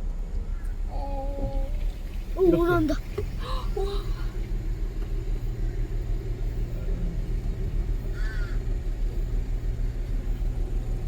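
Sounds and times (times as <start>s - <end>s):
vehicle engine idling: 0.0s - 11.0s
crow cawing: 8.2s - 8.6s.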